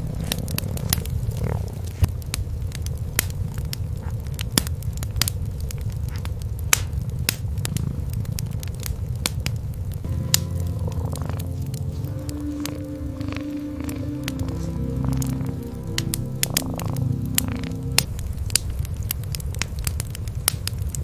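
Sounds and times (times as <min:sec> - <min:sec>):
cats purring: 0:00.0 - 0:04.4, 0:07.0 - 0:09.2, 0:10.1 - 0:18.2
wood fire crackling: 0:00.0 - 0:21.0.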